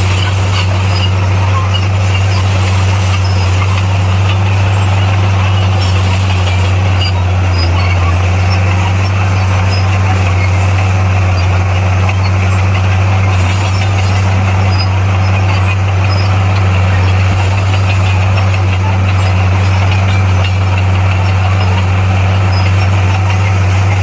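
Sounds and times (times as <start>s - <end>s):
bulldozer diesel engine droning: 0.0s - 24.0s.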